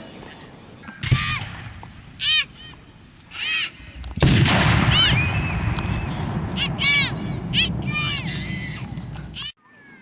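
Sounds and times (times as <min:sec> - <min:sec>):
firework bursting with a crack: 0:04.0 - 0:09.5
loud rush of noise: 0:04.0 - 0:09.5
spectators whooping and yelling: 0:05.0 - 0:09.5.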